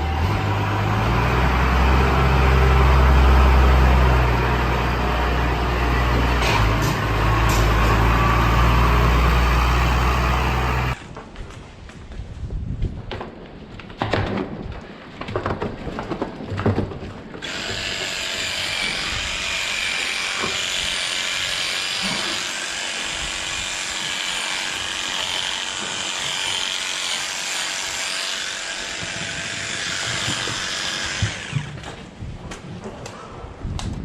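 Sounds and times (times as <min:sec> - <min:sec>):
power tool whirring: 0:02.0 - 0:11.0, 0:17.4 - 0:32.0.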